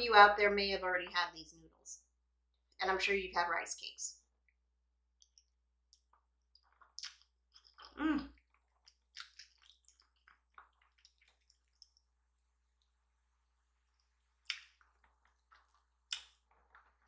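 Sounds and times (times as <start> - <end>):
wet chewing and mouth smacks: 4.4 - 13.0, 13.8 - 17.0.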